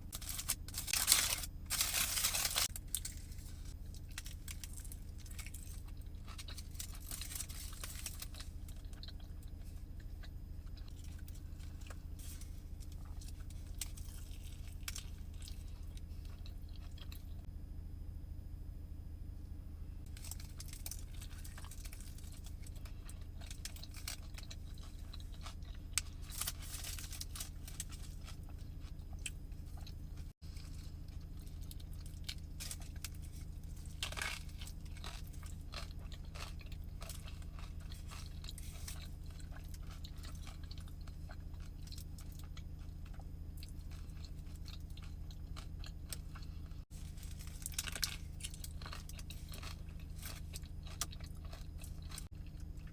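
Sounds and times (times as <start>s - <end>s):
person chewing and biting food: 0.0s - 17.5s, 20.0s - 52.9s
steady low hum: 0.0s - 52.9s.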